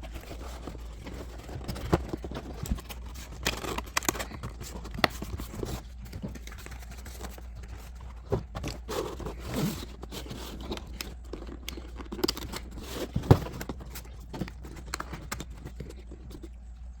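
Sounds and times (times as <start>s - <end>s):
objects being handled: 0.0s - 16.6s
low steady hum: 0.0s - 17.0s.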